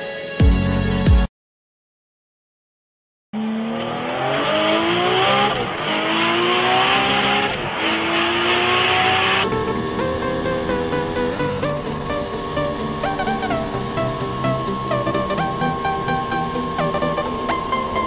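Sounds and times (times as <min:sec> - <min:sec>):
wind and road noise: 0:03.4 - 0:15.5
moped engine revving: 0:03.4 - 0:18.0.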